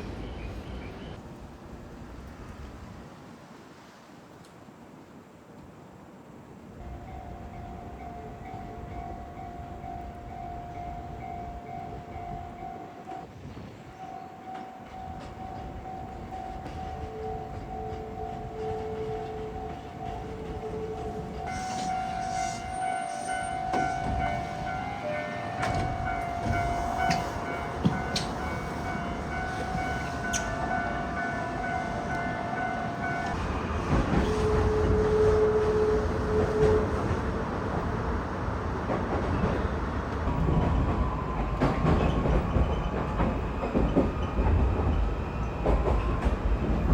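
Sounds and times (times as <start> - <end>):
electric train whine: 6.5 - 46.9
train clicks and rattles: 13.9 - 24.8, 25.5 - 32.3, 33.0 - 35.3, 36.1 - 46.9.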